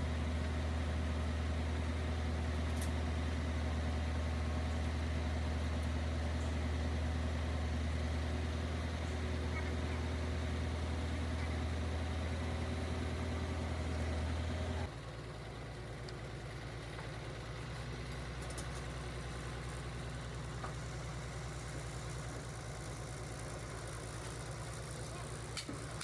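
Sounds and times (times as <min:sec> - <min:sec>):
pulsing engine drone: 0:00.0 - 0:14.9
engine idling: 0:00.0 - 0:26.0.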